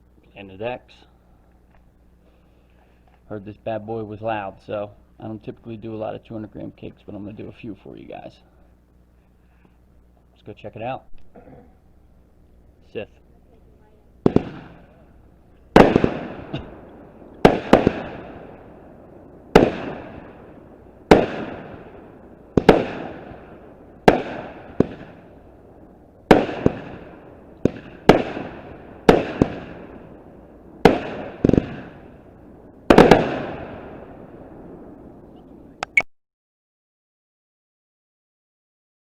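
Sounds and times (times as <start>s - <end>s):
firework cake reports echoing: 3.3s - 8.6s, 12.8s - 35.9s.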